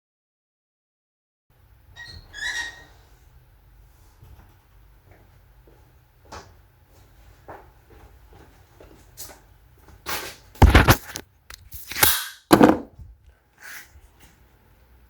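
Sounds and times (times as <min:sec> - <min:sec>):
sharp knocks and clatters: 0:10.6 - 0:11.2, 0:12.5 - 0:12.9.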